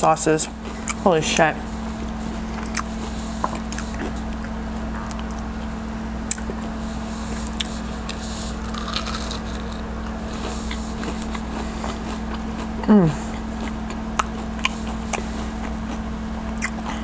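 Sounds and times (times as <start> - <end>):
low electrical hum: 0.0 - 17.0
person chewing crispy food: 2.0 - 5.5, 6.3 - 17.0
wet mouth clicks: 16.6 - 16.9.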